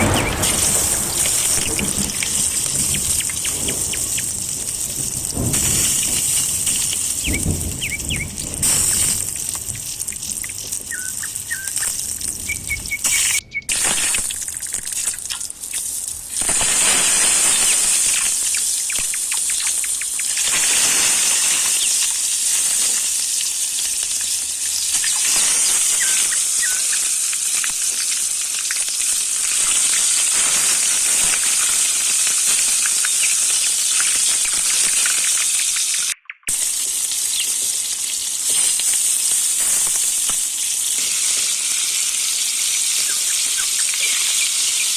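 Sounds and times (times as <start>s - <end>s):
food sizzling in a pan: 0.0s - 44.9s
birds chirping faintly: 7.2s - 9.0s, 10.4s - 14.2s.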